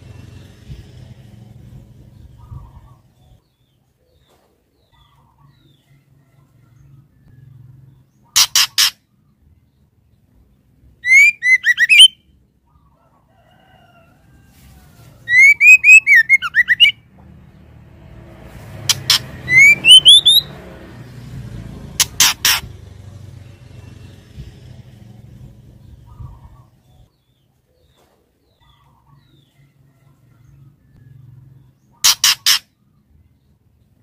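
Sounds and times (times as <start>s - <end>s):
bird calling harsh notes and whistles: 8.3s - 9.0s, 11.0s - 12.3s, 15.3s - 17.0s, 18.9s - 20.5s, 22.0s - 22.6s, 31.9s - 32.8s
low rumble: 22.6s - 27.0s.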